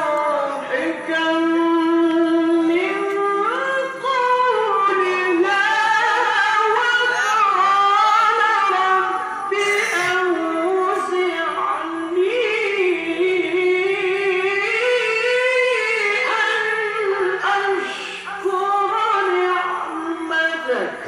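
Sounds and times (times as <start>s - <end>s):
man chanting melismatically: 0.0s - 21.0s.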